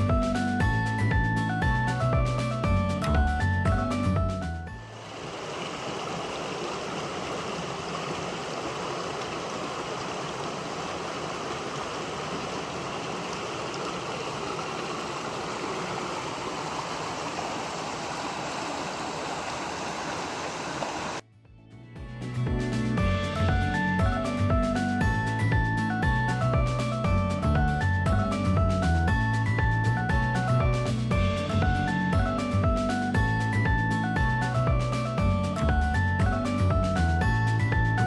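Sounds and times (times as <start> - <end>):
stream flowing: 4.8 - 21.2.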